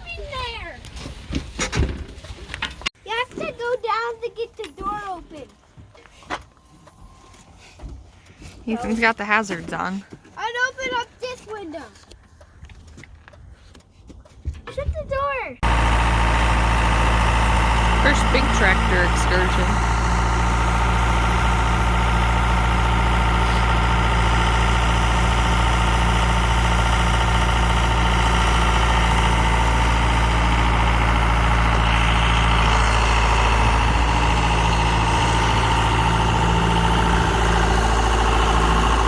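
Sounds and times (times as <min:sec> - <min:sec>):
high engine whine: 0:15.6 - 0:39.0
tractor diesel engine drone: 0:15.6 - 0:39.0.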